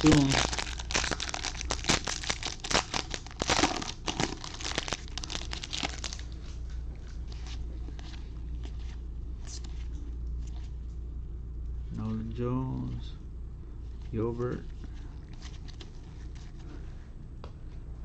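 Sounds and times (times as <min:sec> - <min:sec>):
card pack wrappers crinkling: 0:00.0 - 0:06.5
low steady hum: 0:00.0 - 0:18.0.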